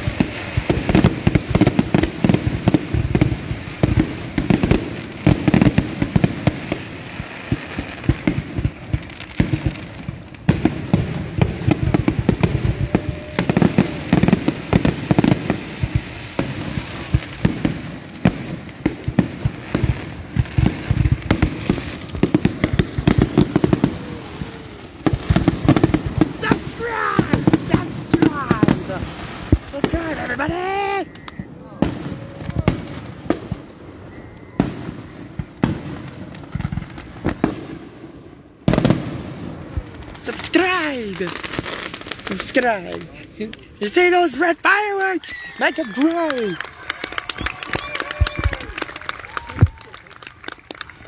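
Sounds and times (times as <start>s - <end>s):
fireworks booms and crackling bangs: 0.0s - 51.0s.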